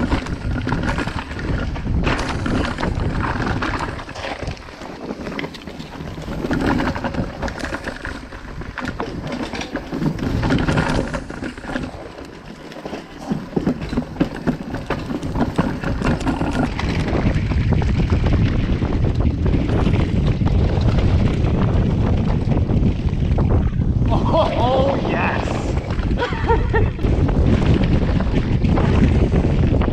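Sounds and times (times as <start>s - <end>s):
tyres on dirt: 0.0s - 22.2s
bike clattering over rough ground: 0.0s - 24.9s, 25.7s - 29.9s
wind buffeting microphone: 0.0s - 29.9s.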